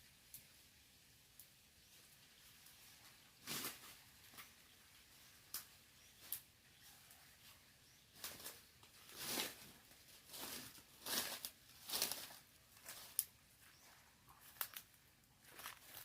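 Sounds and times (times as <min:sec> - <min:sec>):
dry leaves rustling and crackling: 0:01.9 - 0:16.0.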